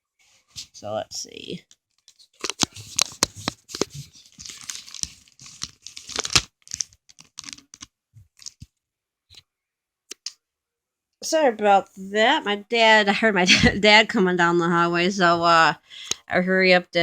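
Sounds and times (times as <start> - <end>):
package wrapping ripping: 2.0 - 8.7.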